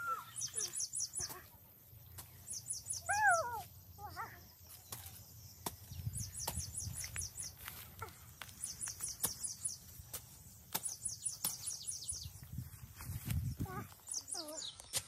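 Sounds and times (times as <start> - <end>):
bird singing high falling chirps: 0.0 - 1.4, 2.0 - 7.6, 8.6 - 10.1, 10.7 - 12.5
hoe chopping into wet soil: 9.0 - 11.8.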